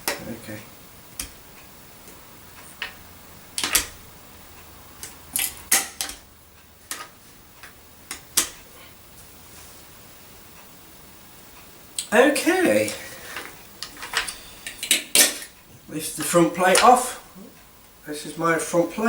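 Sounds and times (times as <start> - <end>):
vacuum cleaner parts clicking: 12.8 - 15.5.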